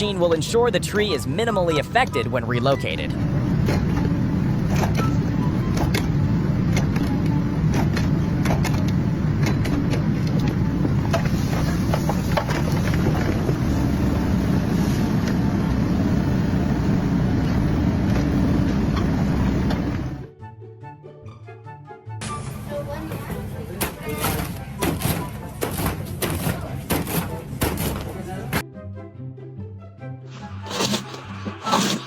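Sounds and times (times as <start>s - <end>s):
machine engine running: 22.5s - 28.6s
clicks and knocks: 23.1s - 28.6s.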